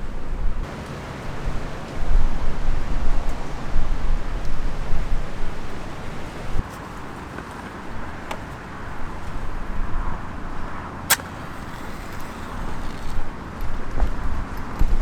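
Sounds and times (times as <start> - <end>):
outdoor hiss: 0.6 - 9.5, 11.1 - 13.6
sharp click: 11.1 - 13.3.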